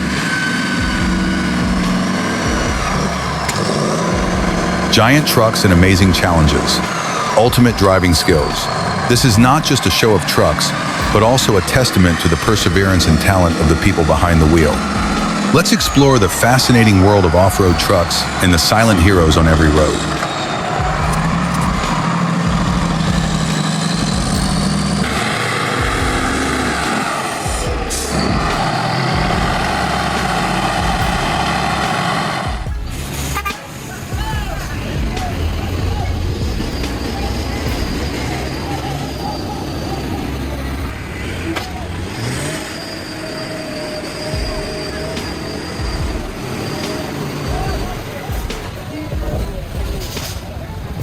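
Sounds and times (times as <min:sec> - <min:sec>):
thin whine: 0:00.0 - 0:51.0
truck engine running: 0:00.0 - 0:51.0.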